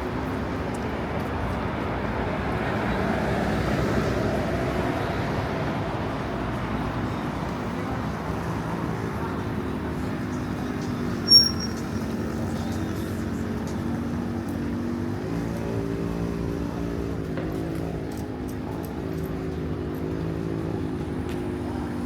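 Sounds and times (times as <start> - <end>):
street traffic: 0.0 - 22.0
vehicle engine humming: 0.0 - 22.0
short sharp high beep: 11.2 - 12.0.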